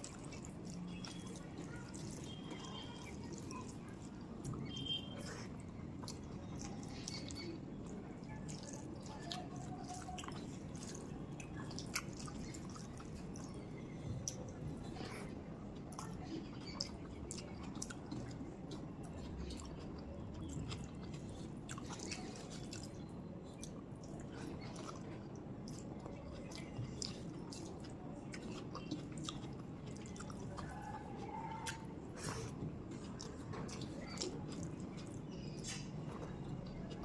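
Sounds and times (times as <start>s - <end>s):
person chewing food: 0.0s - 37.0s.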